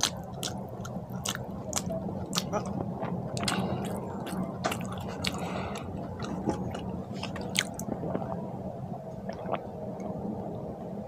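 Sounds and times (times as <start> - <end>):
chewing food: 0.0 - 8.3
steady low hum: 0.0 - 11.0.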